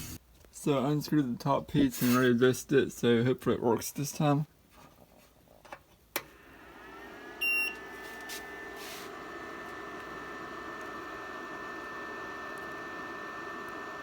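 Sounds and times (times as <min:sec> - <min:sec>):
printer fans and motors humming: 0:06.3 - 0:14.0.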